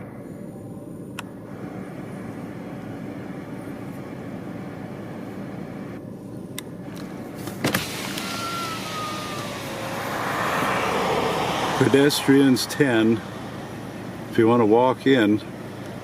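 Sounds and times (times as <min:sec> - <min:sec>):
car engine and road hum: 0:00.0 - 0:16.0
outside air hiss: 0:00.0 - 0:16.0.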